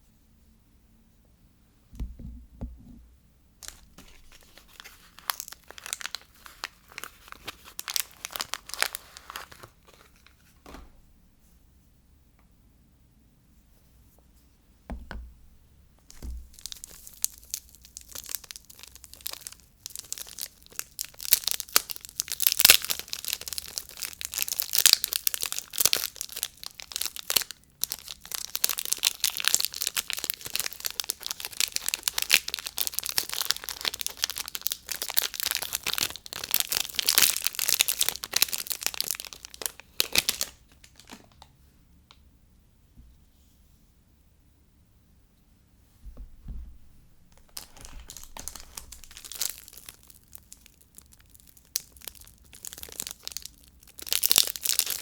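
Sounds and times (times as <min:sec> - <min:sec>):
soft knocks: 0:02.0 - 0:03.1, 0:14.9 - 0:15.6, 0:46.0 - 0:48.1
packaging tearing and crinkling: 0:03.6 - 0:10.5, 0:16.1 - 0:41.5, 0:47.2 - 0:55.0.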